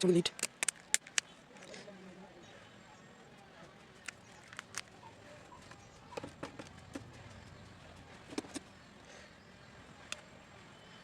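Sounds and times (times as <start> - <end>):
small tools clicking and tapping: 0.3 - 1.3, 4.0 - 5.0.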